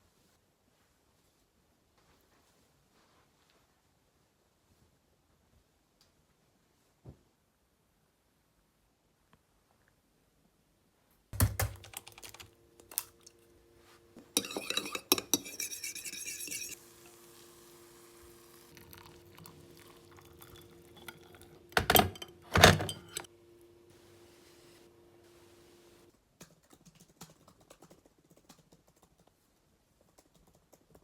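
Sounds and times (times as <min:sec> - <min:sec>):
faint appliance hum: 0:00.2 - 0:31.0
dishes clinking: 0:14.3 - 0:16.8, 0:18.9 - 0:23.3
kitchenware knocking: 0:21.1 - 0:23.3.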